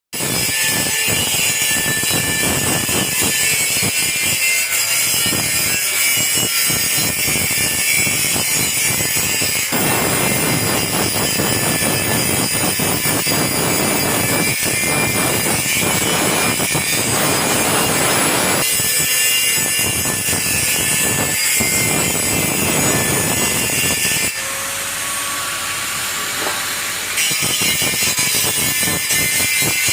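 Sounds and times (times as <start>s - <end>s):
angle grinder grinding metal: 0.2s - 29.9s.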